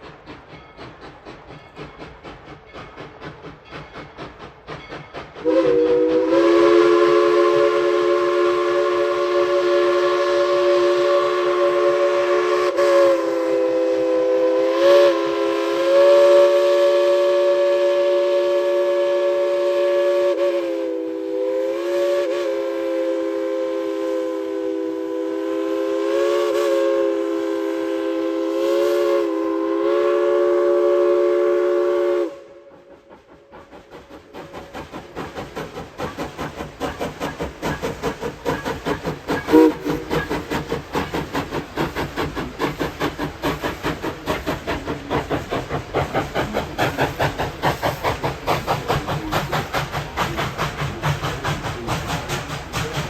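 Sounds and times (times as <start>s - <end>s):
steam locomotive whistle blowing: 4.8s - 32.9s, 37.0s - 41.3s.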